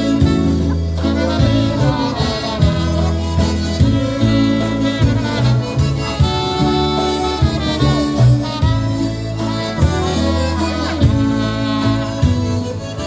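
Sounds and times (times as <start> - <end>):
bass line: 0.0 - 13.0
horns playing melody: 0.0 - 13.0
polka band playing a waltz: 0.0 - 13.0.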